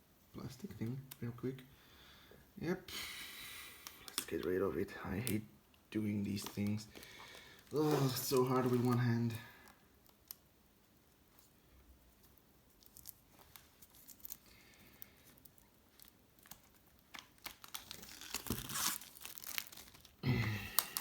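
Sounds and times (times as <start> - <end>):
plastic wrap crinkling: 6.0 - 10.4, 12.1 - 21.0.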